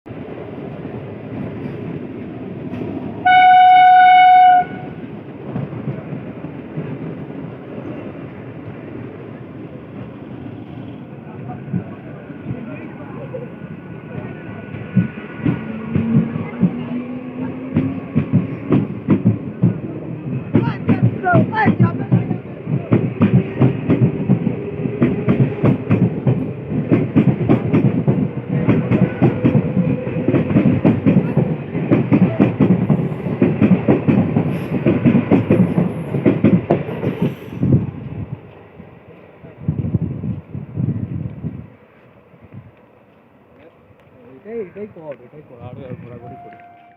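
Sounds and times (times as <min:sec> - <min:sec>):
train rumbling: 0:00.1 - 0:46.9
train horn blast: 0:03.2 - 0:05.0, 0:46.2 - 0:46.9
train wheels clattering over rail joints: 0:14.7 - 0:37.6.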